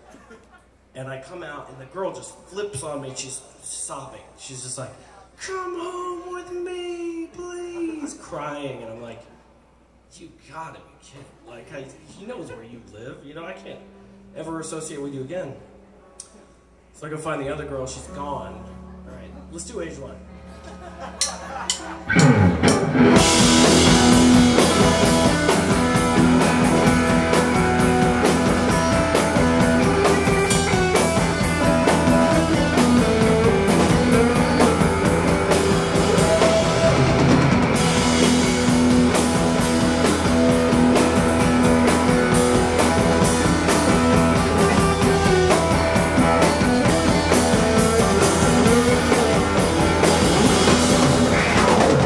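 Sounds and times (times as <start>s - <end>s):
live rock band playing: 20.2s - 52.0s
drum hits: 21.2s - 52.0s.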